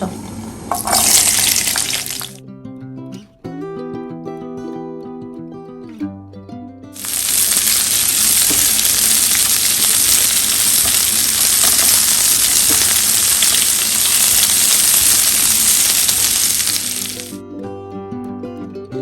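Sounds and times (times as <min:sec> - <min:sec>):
onion sizzling in hot oil: 0:00.0 - 0:02.4, 0:07.0 - 0:17.4.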